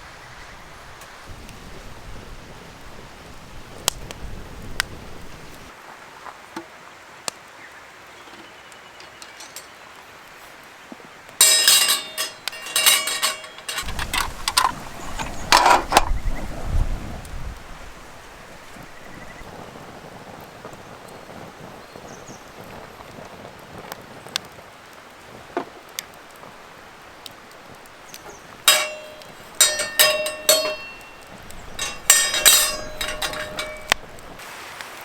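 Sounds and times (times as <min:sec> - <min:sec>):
light clicks and clinks: 0:09.0 - 0:09.9, 0:11.4 - 0:16.2, 0:27.8 - 0:34.4.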